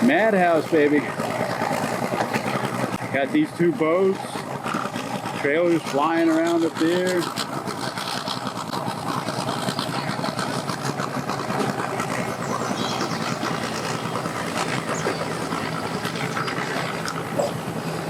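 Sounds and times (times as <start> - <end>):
engines humming: 12.1 - 16.6
crackling outdoor noise: 12.1 - 17.3.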